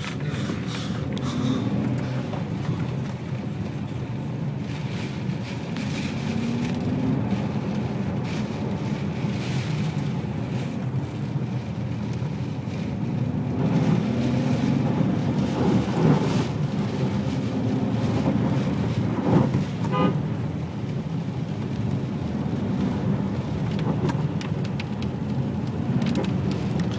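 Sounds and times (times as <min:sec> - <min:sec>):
car engine accelerating: 0:00.0 - 0:26.9
tyre noise on wet road: 0:00.0 - 0:26.9.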